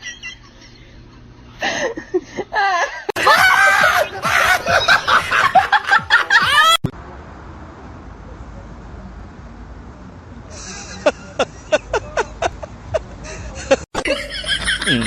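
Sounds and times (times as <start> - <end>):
person laughing: 0.0 - 6.8, 10.5 - 15.0.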